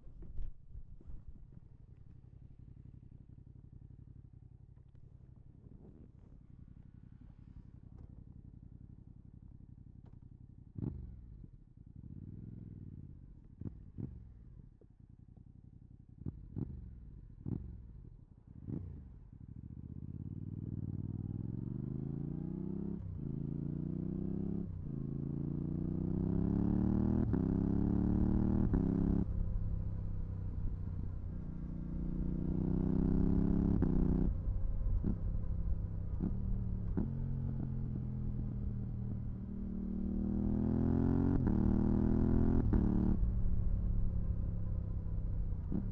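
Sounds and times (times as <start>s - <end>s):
motorcycle engine accelerating: 16.1s - 45.9s.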